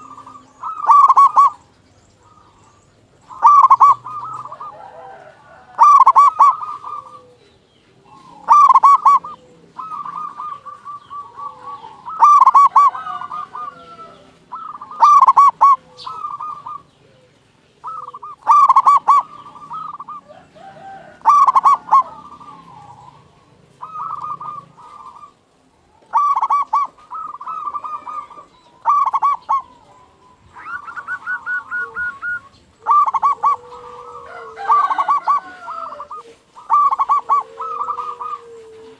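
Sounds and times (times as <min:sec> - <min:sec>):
dove cooing song: 0:00.0 - 0:38.9.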